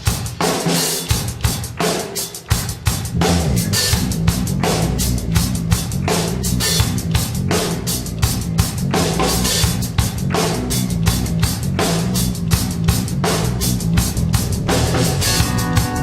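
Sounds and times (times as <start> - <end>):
drum kit beat: 0.0 - 16.0
bass line: 3.1 - 16.0
jazz fusion band playing: 13.2 - 16.0.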